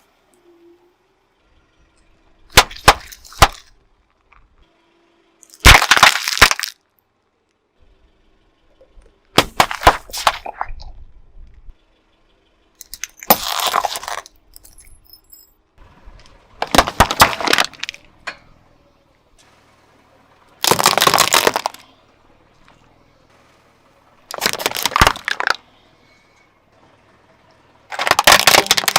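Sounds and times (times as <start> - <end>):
tyre crunching brittle objects: 5.4 - 6.8, 12.9 - 14.3, 16.6 - 18.1, 20.6 - 21.9, 24.3 - 25.6, 27.9 - 28.9.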